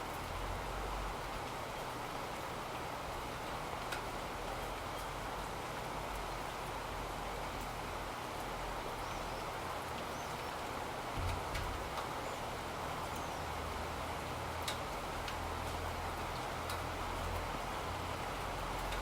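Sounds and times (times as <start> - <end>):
rain hiss: 0.0 - 19.0.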